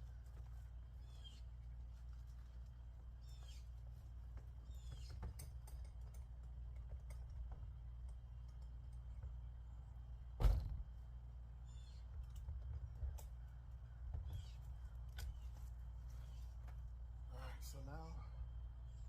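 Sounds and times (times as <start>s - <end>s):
steady low hum: 0.0s - 19.0s
loud thump: 10.4s - 10.9s.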